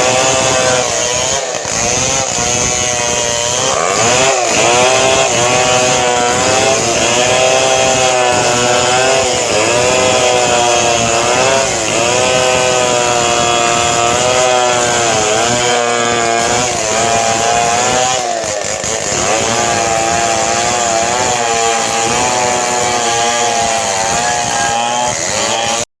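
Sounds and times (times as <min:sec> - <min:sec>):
chainsaw cutting wood: 0:00.0 - 0:25.9.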